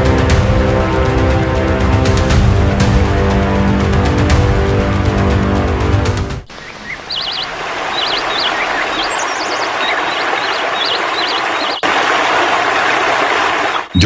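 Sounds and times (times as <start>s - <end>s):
background forest hiss: 0.0s - 14.0s
birds chirping and warbling: 6.4s - 14.0s.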